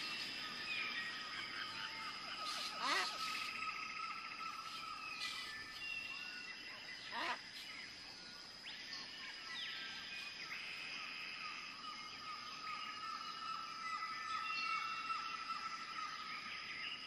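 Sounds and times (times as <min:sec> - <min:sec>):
birds chirping and calling: 0:00.0 - 0:08.1.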